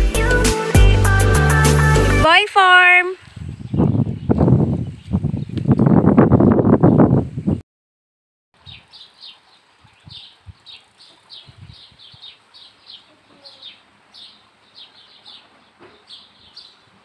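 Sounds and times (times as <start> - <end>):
small bird chirping: 8.6 - 16.9.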